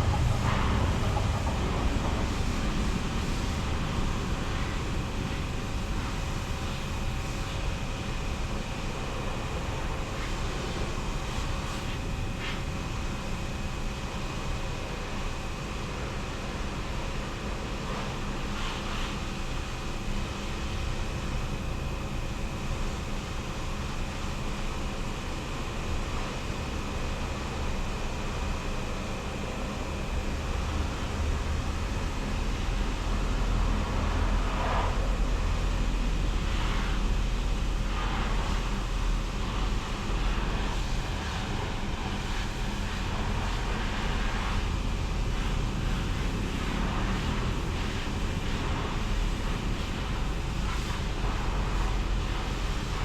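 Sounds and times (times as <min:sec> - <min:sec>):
deep rumble: 0:00.0 - 0:05.6
car wash machinery hum: 0:00.0 - 0:53.0.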